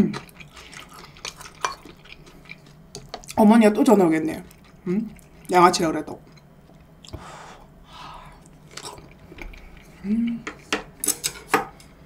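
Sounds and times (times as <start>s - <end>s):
person chewing food: 0.0s - 3.4s, 4.4s - 5.5s, 6.2s - 11.0s
person humming: 10.0s - 10.6s.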